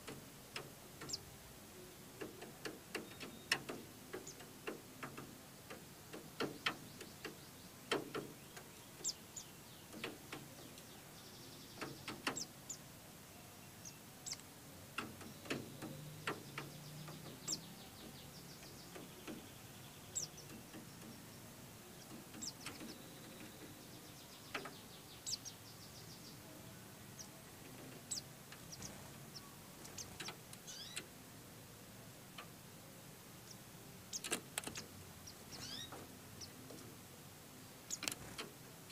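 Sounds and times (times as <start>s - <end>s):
birds chirping: 0.0s - 38.9s
sharp little clicks: 2.2s - 9.2s, 29.9s - 31.1s, 34.1s - 34.9s, 37.9s - 38.6s.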